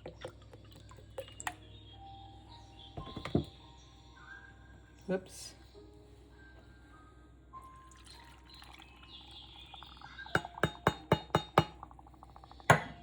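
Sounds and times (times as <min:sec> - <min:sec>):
pouring into glass container: 0:07.8 - 0:12.7.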